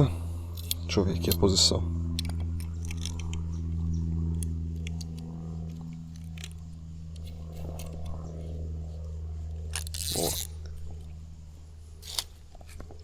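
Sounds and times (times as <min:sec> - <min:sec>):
steady low hum: 0:00.0 - 0:13.0
fishing reel clicks and rubs: 0:09.7 - 0:10.5, 0:12.0 - 0:12.4.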